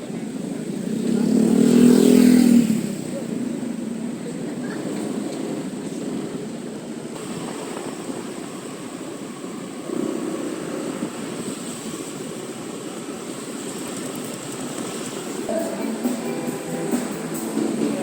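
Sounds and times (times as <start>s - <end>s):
wind and road rush: 0.0s - 18.0s
scooter engine drone: 13.9s - 18.0s
thin high whine: 15.5s - 18.0s.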